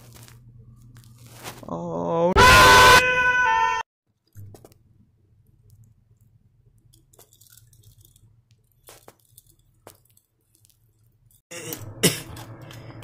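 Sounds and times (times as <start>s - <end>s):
low steady hum: 0.0s - 2.3s
toy trains rustling and clicking: 6.8s - 11.5s.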